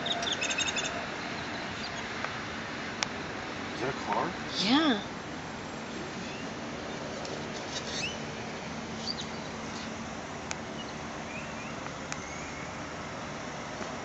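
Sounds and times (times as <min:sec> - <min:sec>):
small birds chirping: 0:00.0 - 0:02.3, 0:04.6 - 0:08.3, 0:08.9 - 0:13.0
steady outdoor hiss: 0:00.0 - 0:14.0.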